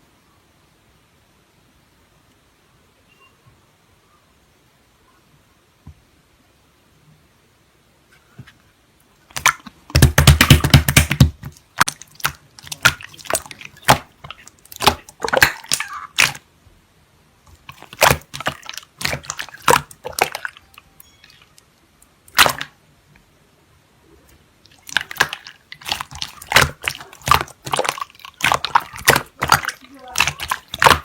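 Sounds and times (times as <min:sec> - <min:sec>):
slime squeezed popping and crackling: 0:09.3 - 0:16.4, 0:17.6 - 0:20.6, 0:22.3 - 0:22.7, 0:24.7 - 0:31.0.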